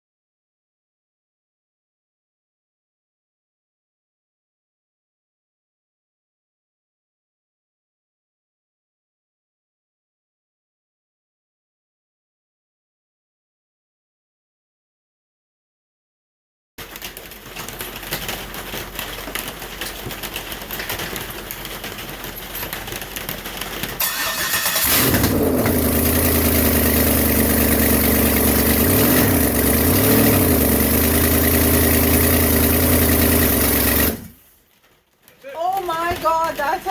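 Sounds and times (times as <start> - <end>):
engine cranking and idling: 16.8 - 34.5.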